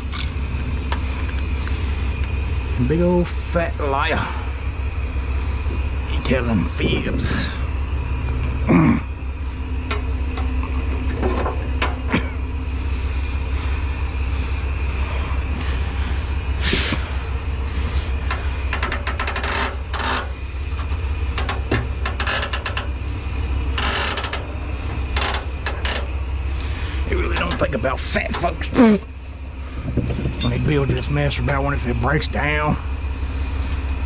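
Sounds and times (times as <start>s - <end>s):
truck diesel engine idling: 9.1s - 30.0s
sharp clicks and clanks: 17.8s - 29.2s.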